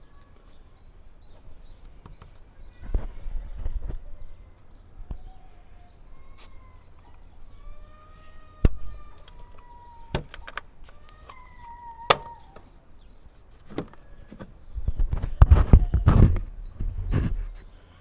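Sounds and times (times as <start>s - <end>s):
sharp plastic clip clicks: 8.6s - 12.7s
plastic housing knocking and rustling: 8.7s - 12.7s, 13.6s - 17.7s.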